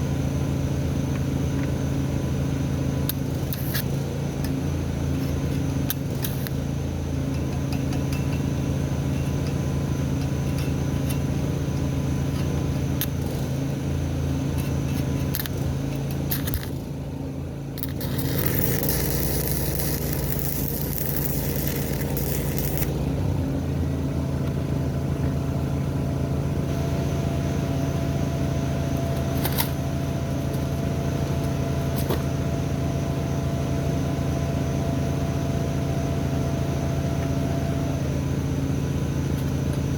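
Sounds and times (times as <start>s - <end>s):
arc welder buzzing and crackling: 0.0s - 24.6s, 26.6s - 33.2s.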